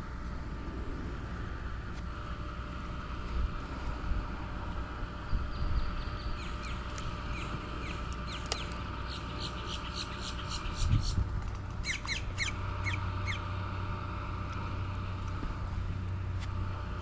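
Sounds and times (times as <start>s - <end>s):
wind rumbling on microphone: 0.0s - 8.0s, 10.3s - 12.4s.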